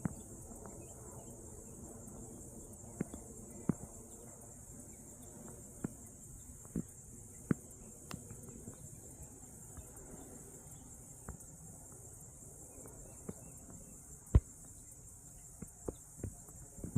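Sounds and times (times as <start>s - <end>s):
crickets chirping: 0.0s - 16.9s.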